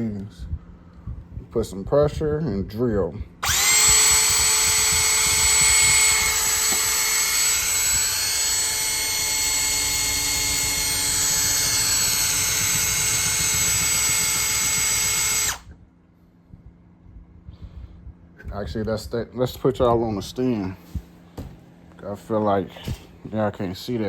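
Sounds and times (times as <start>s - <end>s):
cordless drill boring into door: 3.4s - 15.7s.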